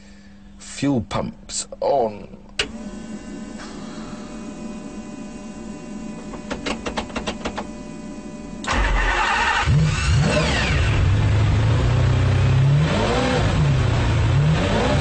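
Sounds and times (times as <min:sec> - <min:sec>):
fuel pumps whirring: 0:02.5 - 0:12.0
car engine starting: 0:08.6 - 0:15.0.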